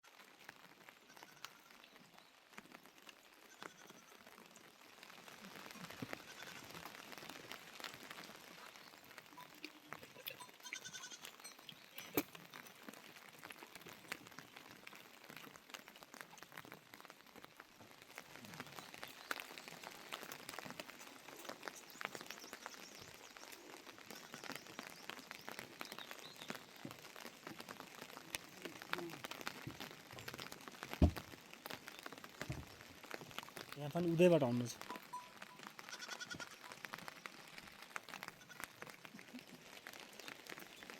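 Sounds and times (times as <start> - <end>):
rain dripping: 0.0 - 40.9
farm animal calling: 9.4 - 12.2, 35.8 - 36.8.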